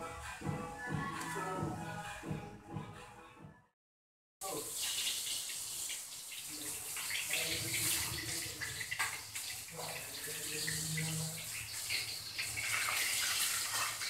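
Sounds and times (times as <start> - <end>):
tofu sizzling in oil: 4.6 - 14.0.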